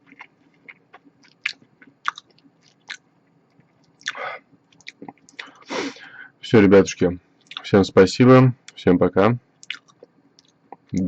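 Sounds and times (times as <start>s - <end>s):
chewing mouth sounds: 0.0s - 3.0s, 3.6s - 5.6s
breathy burst: 5.4s - 6.4s.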